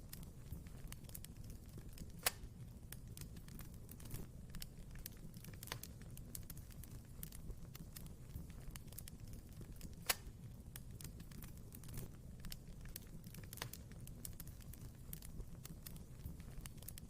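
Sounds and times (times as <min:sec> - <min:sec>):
fire crackling in fireplace: 0:00.0 - 0:17.0
sharp pop of fire: 0:02.0 - 0:02.6, 0:09.8 - 0:10.4.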